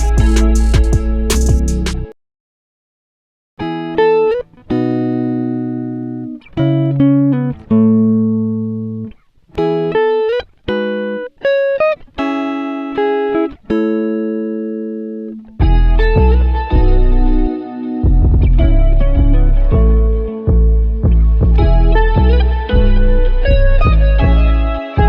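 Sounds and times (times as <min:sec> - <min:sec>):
plucked guitar melody: 0:00.0 - 0:02.2, 0:03.6 - 0:25.0.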